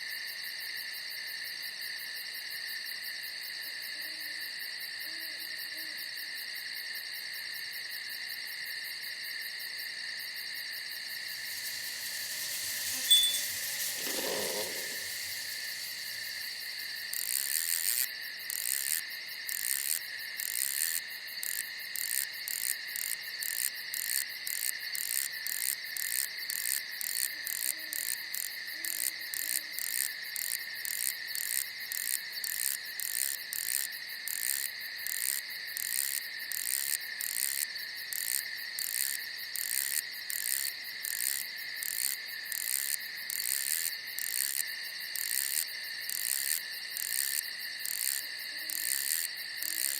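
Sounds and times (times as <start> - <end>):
crickets trilling: 0.2 - 49.9
rhythmic high-pitched chirping: 11.3 - 16.8.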